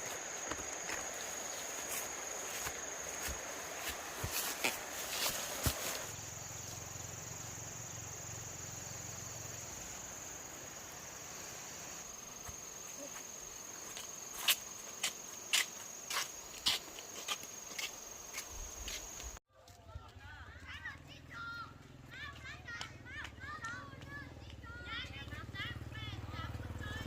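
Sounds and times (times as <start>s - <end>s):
crickets trilling: 0.0s - 19.4s
faint outdoor hiss: 0.0s - 19.4s.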